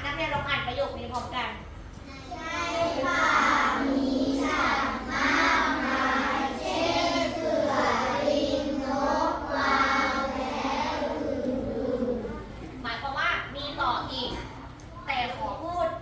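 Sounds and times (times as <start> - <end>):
children calling out in chorus: 2.2 - 12.6.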